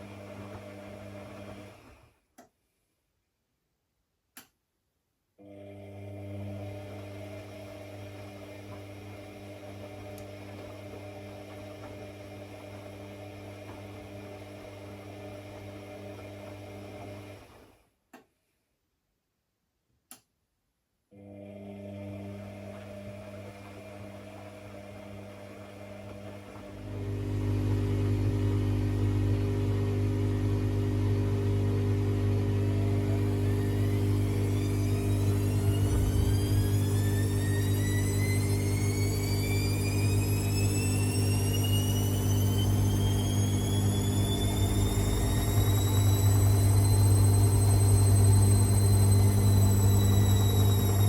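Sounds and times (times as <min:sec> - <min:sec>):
electric device humming: 0:26.0 - 0:51.0.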